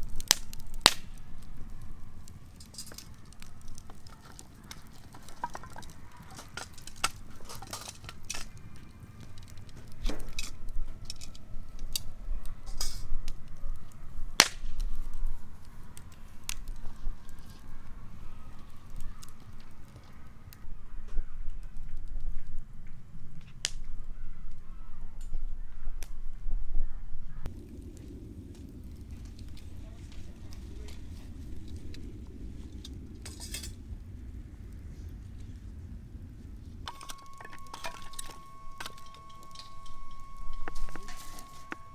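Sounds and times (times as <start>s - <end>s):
cookware clinking: 36.9s - 41.9s.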